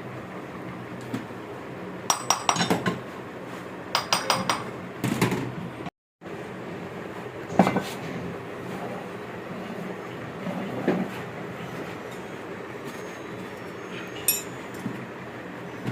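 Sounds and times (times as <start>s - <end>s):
metal tools clinking: 14.2s - 14.8s.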